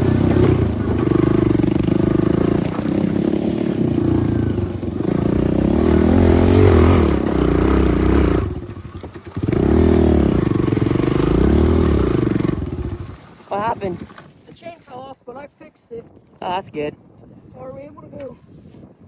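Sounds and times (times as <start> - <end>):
pit bike engine revving: 0.0 - 14.0.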